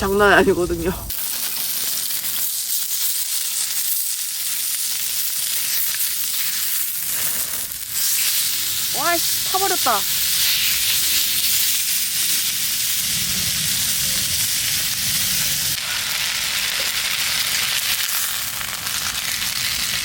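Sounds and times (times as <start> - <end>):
chicken sizzling in a frying pan: 1.1 - 20.0.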